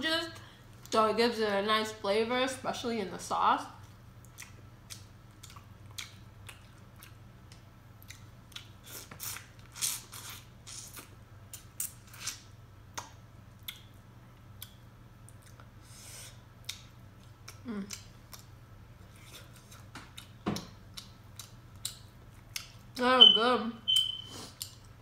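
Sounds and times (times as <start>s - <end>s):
wet chewing: 3.8s - 12.4s
person humming mm: 17.6s - 18.0s.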